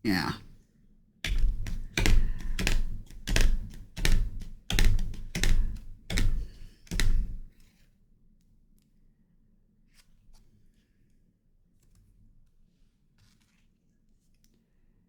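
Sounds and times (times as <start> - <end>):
thumps with sharp clicks: 1.3 - 7.5.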